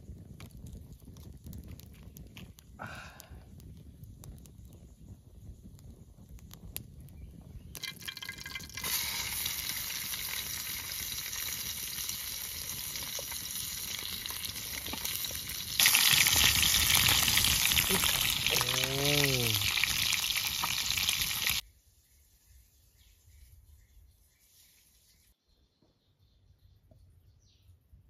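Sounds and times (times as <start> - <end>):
food frying in pan: 7.8 - 21.6.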